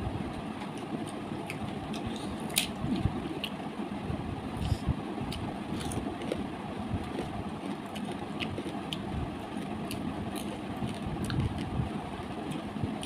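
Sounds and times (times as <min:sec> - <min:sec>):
steady low rumble: 0:00.0 - 0:13.0
chewing and mouth sounds: 0:04.6 - 0:11.8.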